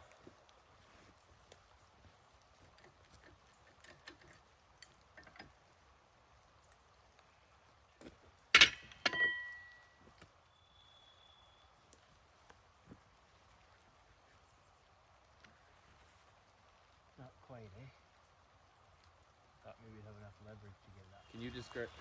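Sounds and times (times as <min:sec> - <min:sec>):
handling knocks and clicks: 0:02.5 - 0:05.7, 0:08.0 - 0:10.3
steel tool clanking on metal: 0:08.6 - 0:09.8.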